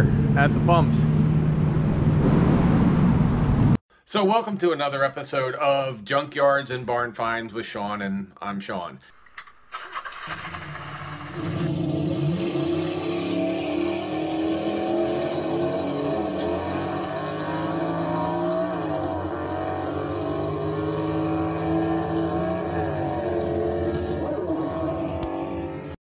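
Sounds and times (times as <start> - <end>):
car engine revving: 9.7 - 26.0.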